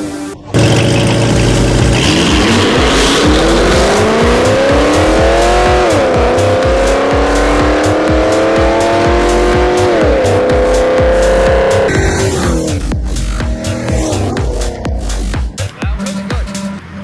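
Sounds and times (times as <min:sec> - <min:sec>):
car engine accelerating hard: 0:00.5 - 0:15.7
music with a steady beat: 0:02.0 - 0:17.0.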